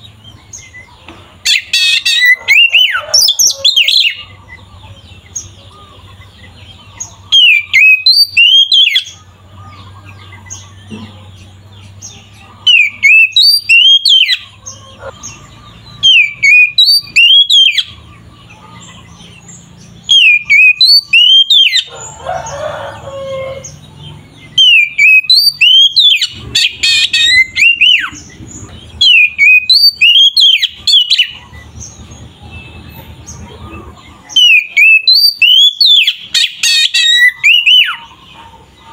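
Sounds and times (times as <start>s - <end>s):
bird singing whistled notes: 6.7s - 9.2s, 12.7s - 14.5s, 15.3s - 18.0s, 19.1s - 21.9s, 24.5s - 33.1s, 34.3s - 38.1s.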